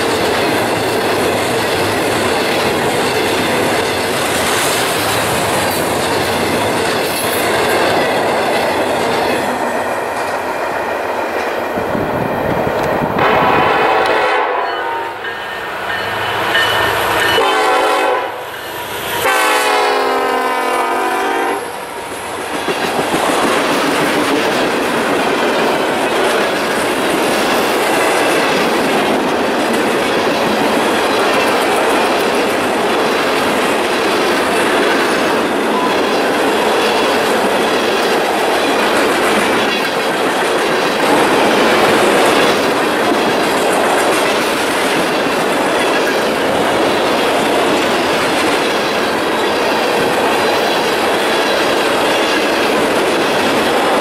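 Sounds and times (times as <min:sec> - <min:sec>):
wheels clacking over rail joints: 0:00.0 - 0:13.3, 0:22.3 - 0:54.0
freight train rumbling past: 0:00.0 - 0:54.0
diesel locomotive horn blasts: 0:13.2 - 0:15.3, 0:17.2 - 0:18.5, 0:19.2 - 0:21.8.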